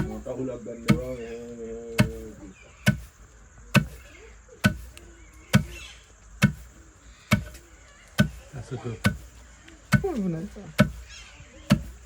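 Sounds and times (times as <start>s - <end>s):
sharp knocks: 2.0s - 2.2s.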